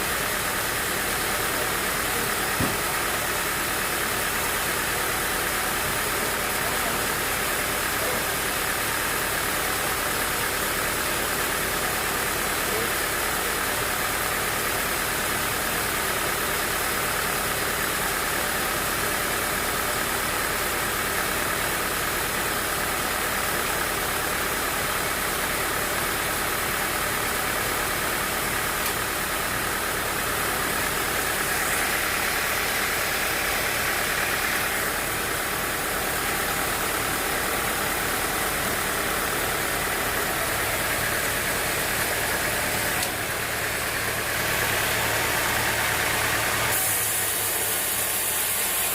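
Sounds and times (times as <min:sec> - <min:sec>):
sawmill machinery running: 0:00.0 - 0:48.9.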